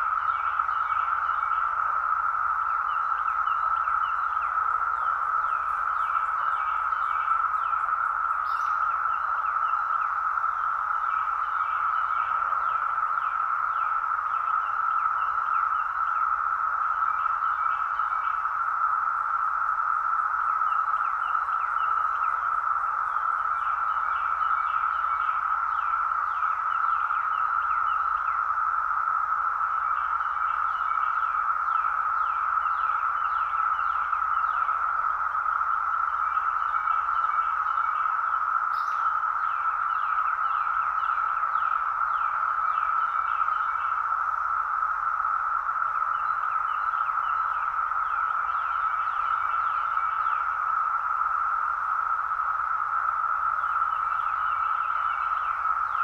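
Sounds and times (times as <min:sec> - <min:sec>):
cicadas droning: 0:00.0 - 0:56.0
bird chirping: 0:02.6 - 0:16.0, 0:36.1 - 0:44.0.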